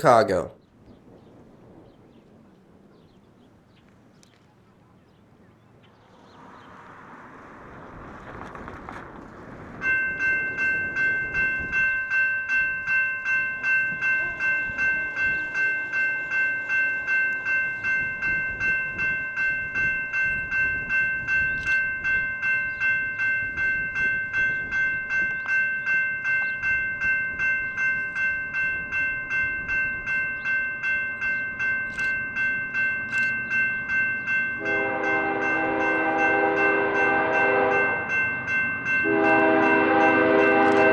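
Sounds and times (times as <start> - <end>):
crossing warning bell ringing: 9.7 - 40.9
locomotive horn: 34.6 - 38.1, 39.0 - 40.9.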